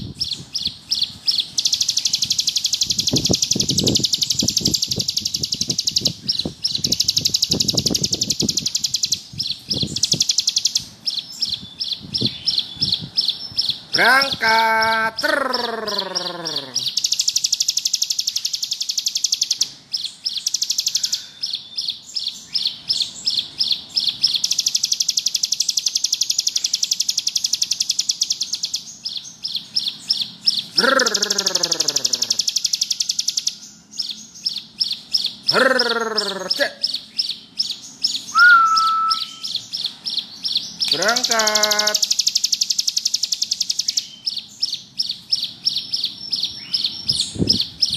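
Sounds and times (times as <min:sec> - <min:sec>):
bird buzzing trill: 0:00.0 - 0:13.1, 0:38.1 - 0:44.2.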